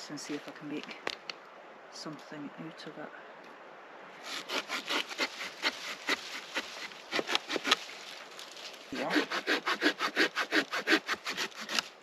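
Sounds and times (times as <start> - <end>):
hand saw cutting wood: 4.2 - 7.8, 9.0 - 12.0.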